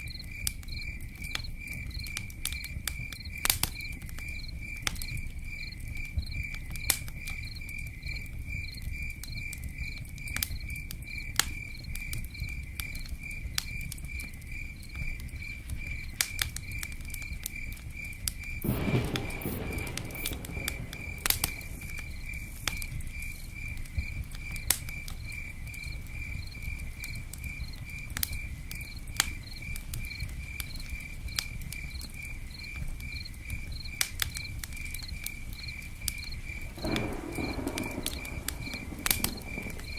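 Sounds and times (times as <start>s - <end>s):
fire crackling: 0.0s - 39.9s
rustling burst: 18.6s - 23.2s, 36.6s - 39.9s.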